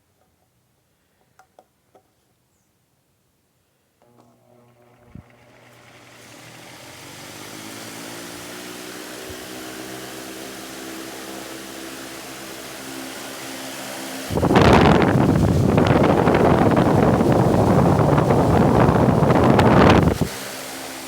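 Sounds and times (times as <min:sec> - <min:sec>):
engine running: 0:14.2 - 0:21.0.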